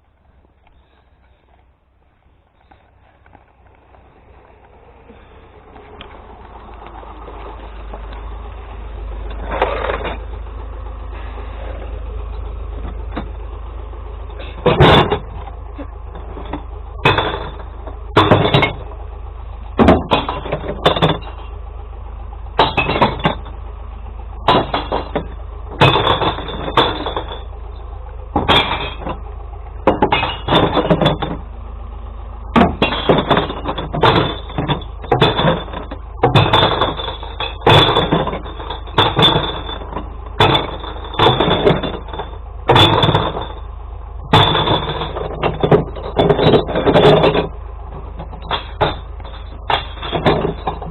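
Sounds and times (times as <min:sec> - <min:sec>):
truck humming: 0:00.0 - 0:50.9
glass bottles crashing: 0:16.5 - 0:18.9, 0:19.8 - 0:21.4, 0:22.6 - 0:23.5, 0:24.5 - 0:27.5, 0:28.4 - 0:29.2, 0:29.9 - 0:31.4, 0:32.6 - 0:43.7, 0:44.3 - 0:50.9.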